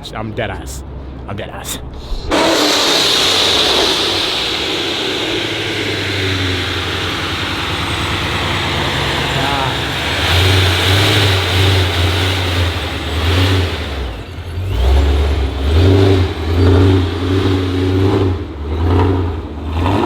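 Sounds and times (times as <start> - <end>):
car engine revving: 1.9 - 20.0.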